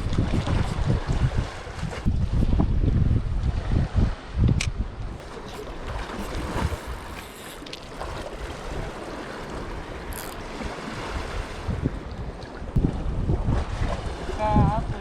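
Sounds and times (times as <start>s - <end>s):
wind gusting against microphone: 0.0s - 15.0s
sea noise: 3.6s - 15.0s
brief rustle: 5.2s - 7.9s, 10.1s - 10.4s.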